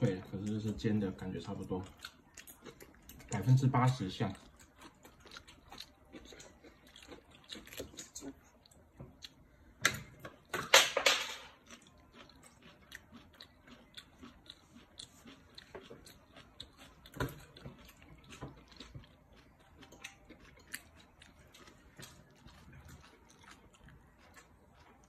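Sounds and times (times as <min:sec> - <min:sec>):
toddler chewing: 0:01.5 - 0:09.4, 0:11.6 - 0:25.0.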